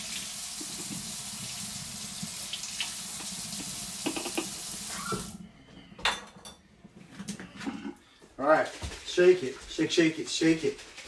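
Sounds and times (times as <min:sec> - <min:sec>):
faucet water running: 0:00.0 - 0:05.4
spoon knocking under tap: 0:03.2 - 0:04.6.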